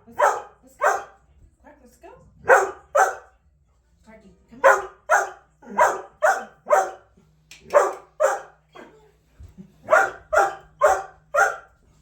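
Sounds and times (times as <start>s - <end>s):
dog barking: 0.0s - 1.2s, 2.4s - 3.3s, 4.6s - 7.1s, 7.7s - 8.9s, 9.8s - 11.8s.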